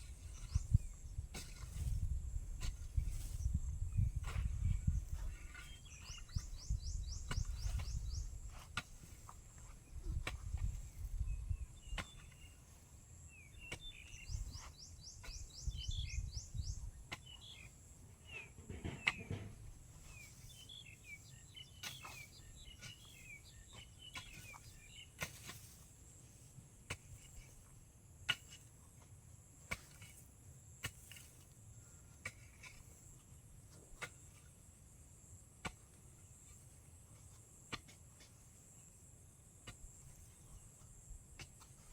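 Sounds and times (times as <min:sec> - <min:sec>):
birds chirping: 0:00.0 - 0:01.2, 0:03.3 - 0:08.8, 0:09.5 - 0:25.2.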